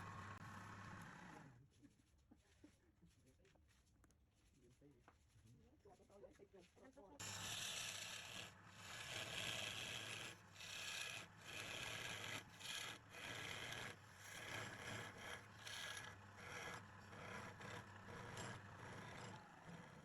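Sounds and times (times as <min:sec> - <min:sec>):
lathe motor hum: 0:00.0 - 0:01.5, 0:07.2 - 0:20.0.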